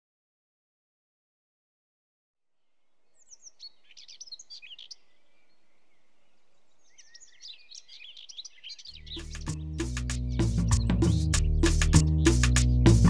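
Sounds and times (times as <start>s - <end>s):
faint outdoor background noise: 2.4s - 13.0s
songbird chirping: 2.6s - 13.0s.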